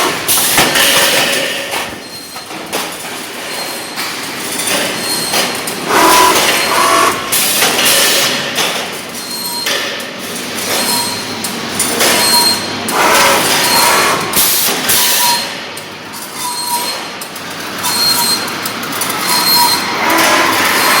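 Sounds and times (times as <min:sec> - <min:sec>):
roll-forming machine running: 0:04.4 - 0:08.8, 0:17.4 - 0:21.0.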